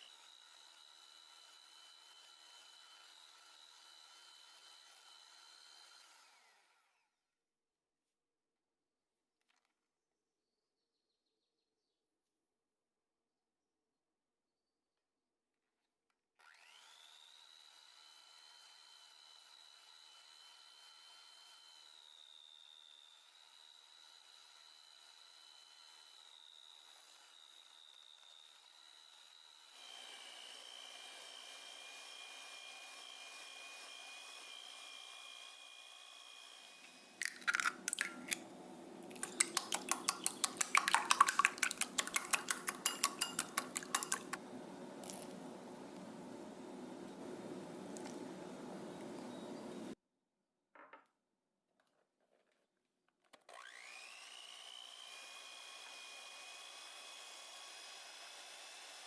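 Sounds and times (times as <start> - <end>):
small electric motor whirring: 0.0 - 7.2, 16.4 - 40.6, 53.4 - 59.0.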